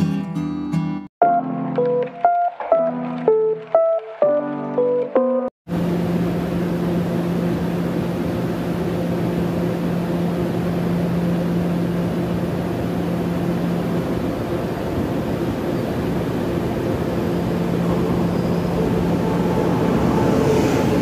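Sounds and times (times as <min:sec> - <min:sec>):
low mechanical hum: 0:05.7 - 0:21.0
approaching train rushing: 0:12.6 - 0:21.0.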